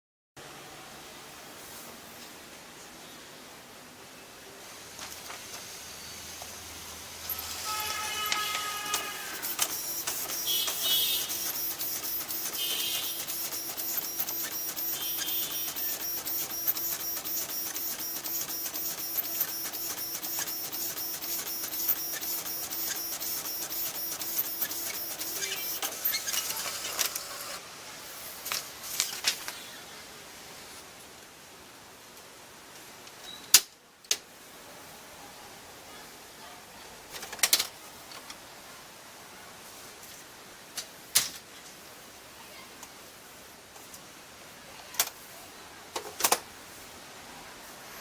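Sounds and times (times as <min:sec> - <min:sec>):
dot matrix printer printing: 0:07.2 - 0:27.6.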